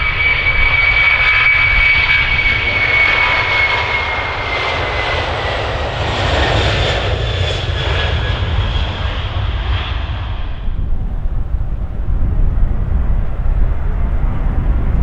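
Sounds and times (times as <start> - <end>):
jet engines whining: 0.0 - 15.0
low rumble: 9.8 - 15.0.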